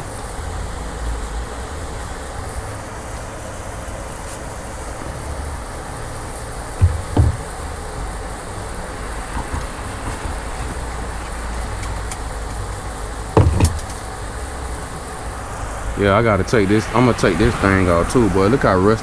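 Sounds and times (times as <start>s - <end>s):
sharp knocks: 5.0s - 14.3s.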